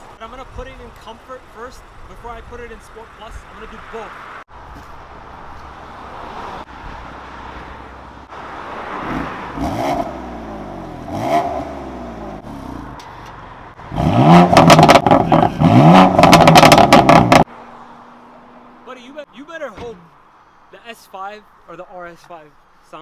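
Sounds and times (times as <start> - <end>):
car engine revving: 8.2 - 17.6
exhaust crackling pops: 14.4 - 17.5.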